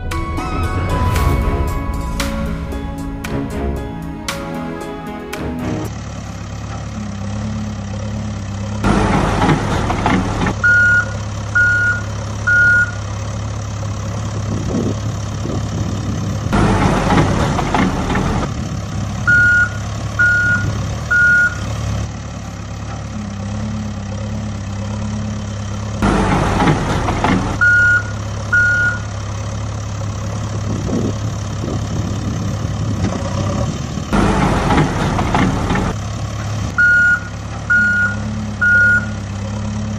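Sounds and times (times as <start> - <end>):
loud noisy rush: 0.0 - 6.0
heavy vehicle engine running: 0.0 - 39.9
reversing alarm beeping: 10.6 - 13.0, 19.3 - 21.7, 27.6 - 29.1, 36.8 - 39.2.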